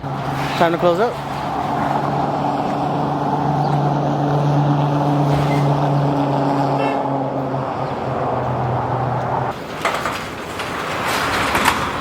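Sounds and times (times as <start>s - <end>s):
steady machine hum: 0.0s - 9.6s.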